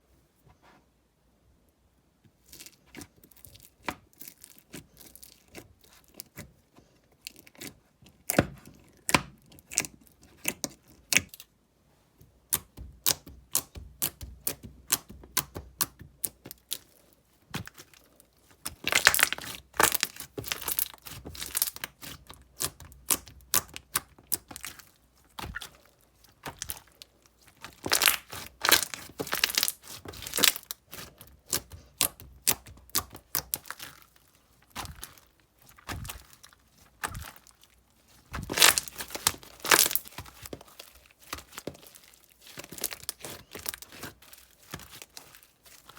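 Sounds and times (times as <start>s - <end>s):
slime clicking and popping: 12.5s - 16.8s, 18.7s - 24.8s, 27.7s - 34.0s, 38.3s - 40.5s.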